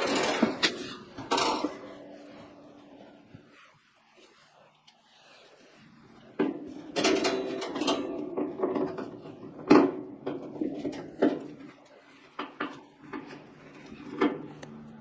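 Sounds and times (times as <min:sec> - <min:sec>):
metal parts clanking and knocking: 0:00.0 - 0:02.1, 0:06.4 - 0:11.8.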